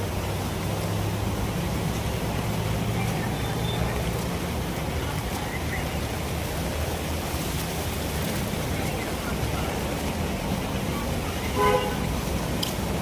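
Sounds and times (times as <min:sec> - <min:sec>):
low engine rumble: 0:00.0 - 0:13.0
street traffic: 0:00.0 - 0:13.0
vehicle horn toot: 0:11.5 - 0:12.1.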